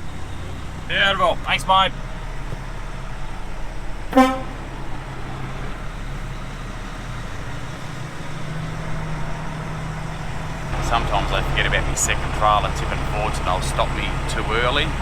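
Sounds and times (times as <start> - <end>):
truck engine humming: 0.0 - 15.0
short horn toot: 4.2 - 4.7.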